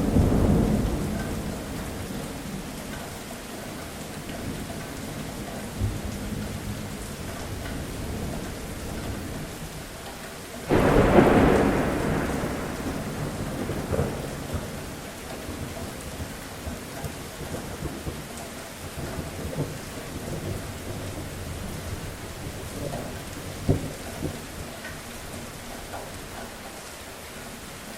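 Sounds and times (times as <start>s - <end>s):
thunder clap rumbling: 0.0s - 2.8s, 10.7s - 18.2s
steady rain falling: 0.0s - 27.9s.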